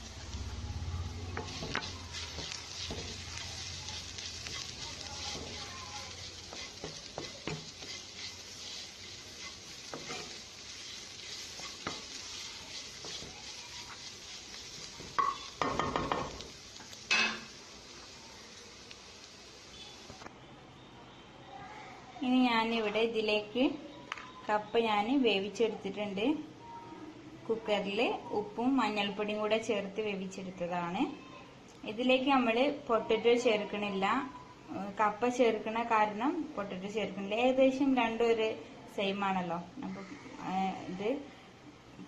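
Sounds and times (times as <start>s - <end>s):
onions sizzling in hot oil: 0.0s - 20.2s, 31.9s - 38.4s
spoon stirring and scraping pan: 1.2s - 17.6s
spoon knocking on pan: 6.4s - 8.0s, 15.0s - 16.4s.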